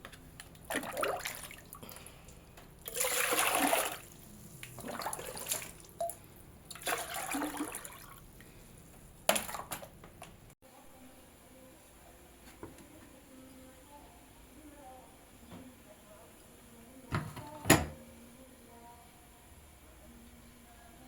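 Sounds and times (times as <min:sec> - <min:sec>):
water pouring: 0:02.8 - 0:08.2.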